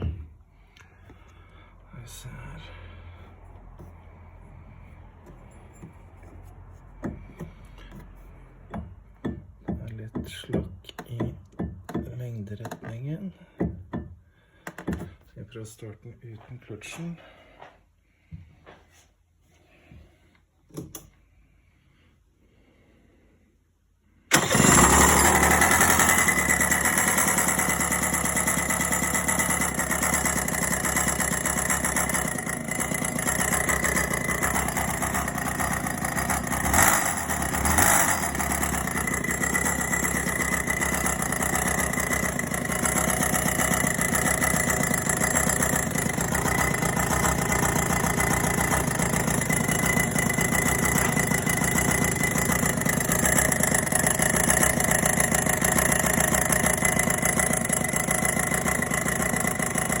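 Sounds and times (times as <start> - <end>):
kart engine running: 24.3 - 60.0.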